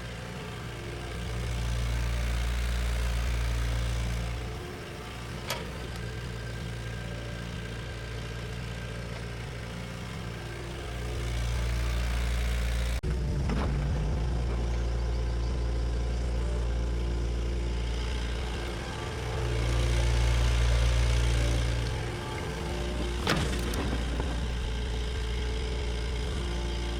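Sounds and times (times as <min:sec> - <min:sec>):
bulldozer diesel engine running: 0:00.0 - 0:26.9.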